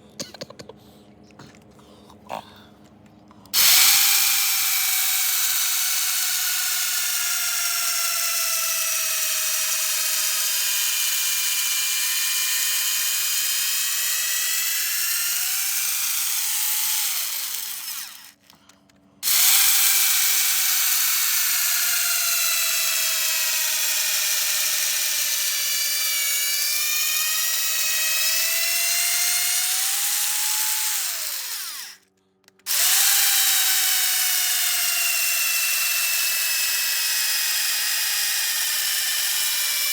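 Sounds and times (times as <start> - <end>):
power drill boring into wood: 3.6 - 18.4, 19.2 - 32.1, 32.7 - 39.9.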